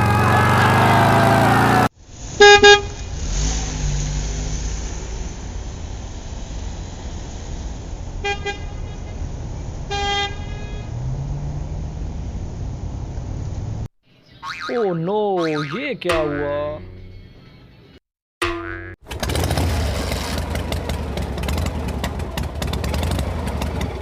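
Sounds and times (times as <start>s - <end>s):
truck engine running: 0.0s - 1.9s, 19.0s - 24.0s
truck horn honking: 0.0s - 3.0s, 8.2s - 8.9s, 9.9s - 11.0s.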